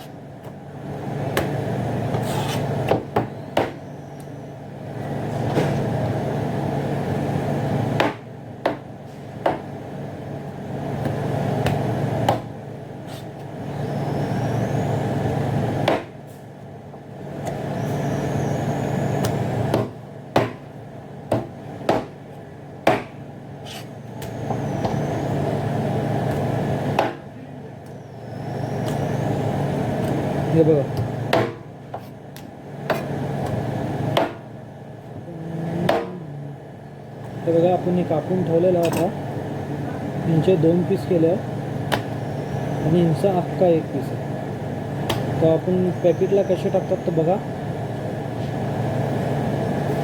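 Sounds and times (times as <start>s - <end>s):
sharp knocks: 21.3s - 22.1s.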